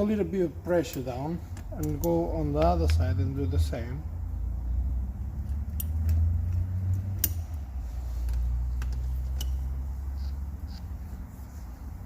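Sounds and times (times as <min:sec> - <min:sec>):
low steady hum: 0:00.0 - 0:12.0
metal tool clicks and taps: 0:00.9 - 0:03.0, 0:05.4 - 0:09.8.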